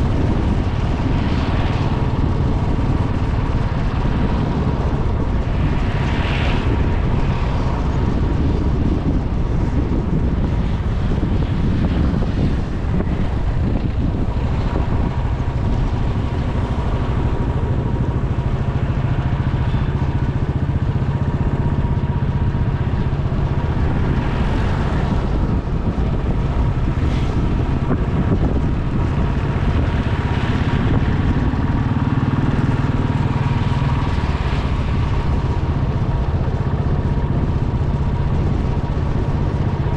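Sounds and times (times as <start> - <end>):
motorcycle engine droning: 0.0 - 39.9
passing traffic: 0.0 - 39.9
wind noise on microphone: 0.0 - 39.9.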